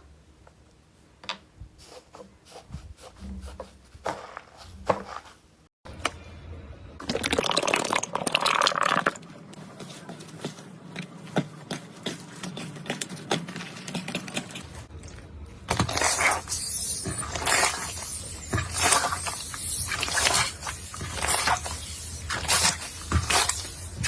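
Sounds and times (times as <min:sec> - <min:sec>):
slime squelching and popping: 0:18.6 - 0:23.7.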